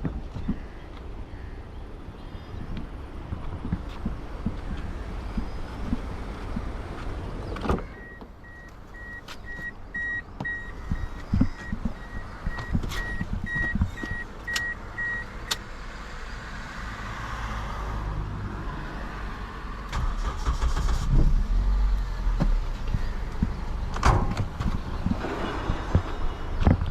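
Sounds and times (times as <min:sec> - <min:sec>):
clicks: 0:07.6 - 0:15.7
car warning chime beeping: 0:07.8 - 0:15.6.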